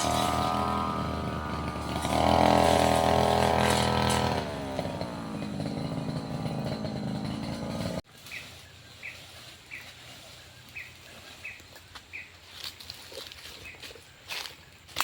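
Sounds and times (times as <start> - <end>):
brush cutter engine running: 0.0 - 8.4.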